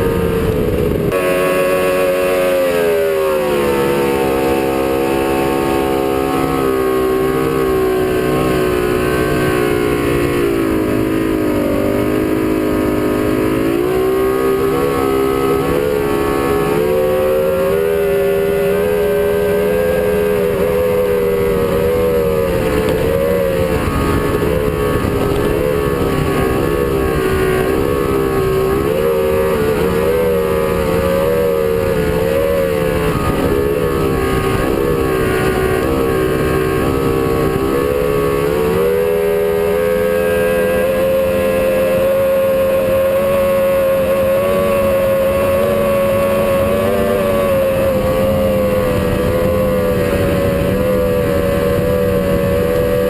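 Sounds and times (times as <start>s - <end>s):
boat engine running at speed: 0.0s - 53.0s.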